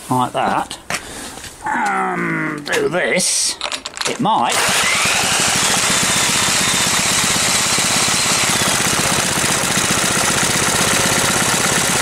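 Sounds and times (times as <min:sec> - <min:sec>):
small engine running: 0:04.5 - 0:12.0.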